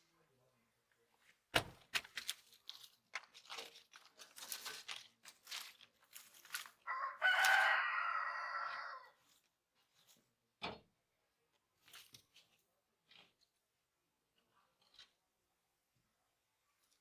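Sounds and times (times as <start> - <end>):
sharp clicks and knocks: 1.6 - 2.2
rooster crowing: 6.9 - 9.2.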